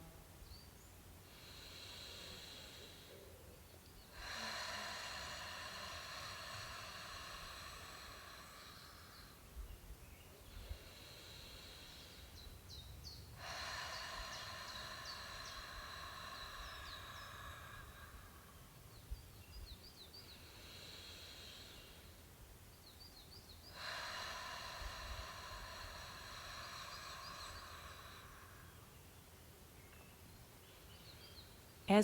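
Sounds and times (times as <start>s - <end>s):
birds chirping: 2.3s - 22.1s, 22.7s - 32.0s
person breathing out: 4.1s - 9.6s, 13.4s - 19.0s, 23.7s - 29.0s.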